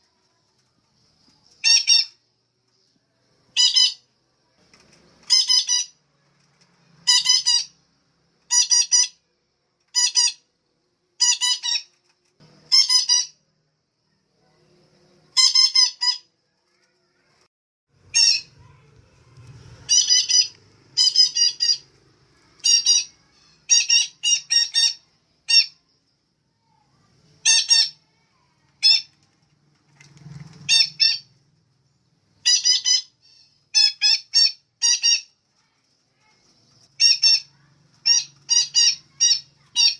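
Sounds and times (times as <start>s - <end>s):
parakeet high-pitched calls: 1.6s - 2.2s, 3.6s - 4.0s, 5.2s - 6.0s, 7.0s - 7.8s, 8.5s - 9.2s, 9.9s - 10.5s, 11.2s - 11.9s, 12.7s - 13.4s, 15.3s - 16.3s, 18.1s - 18.9s, 19.8s - 25.9s, 27.4s - 28.2s, 28.8s - 29.2s, 30.7s - 31.3s, 32.4s - 35.4s, 37.0s - 39.9s.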